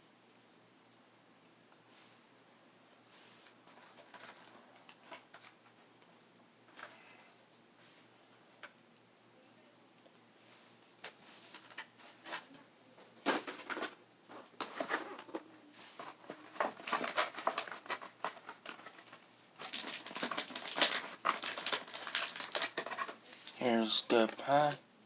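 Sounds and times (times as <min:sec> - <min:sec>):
packaging crinkling: 0:16.0 - 0:24.8.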